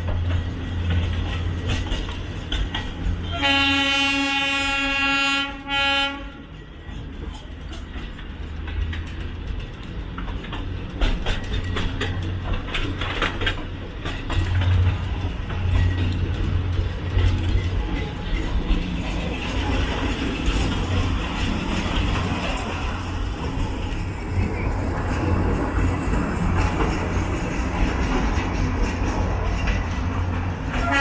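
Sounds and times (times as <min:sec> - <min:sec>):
train coach rattling and clicking: 0:00.0 - 0:31.0
train horn blasts: 0:03.2 - 0:06.5, 0:30.7 - 0:31.0.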